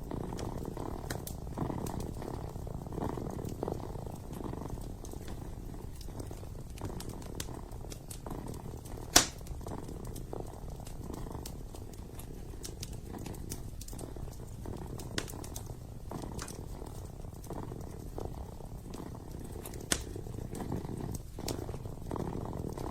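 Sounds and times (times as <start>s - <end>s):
kitten purring: 0.0s - 22.9s
wood fire crackling: 0.0s - 22.9s
sharp pop of fire: 9.1s - 9.5s.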